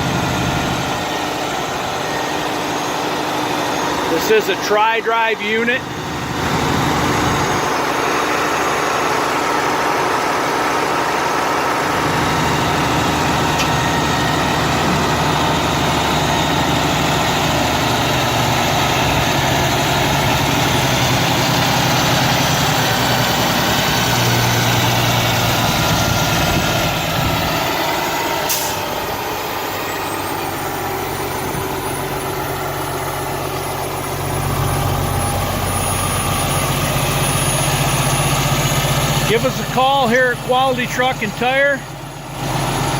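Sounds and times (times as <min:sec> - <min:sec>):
truck engine mechanical din: 0:00.0 - 0:42.9
sharp click: 0:13.6 - 0:13.8.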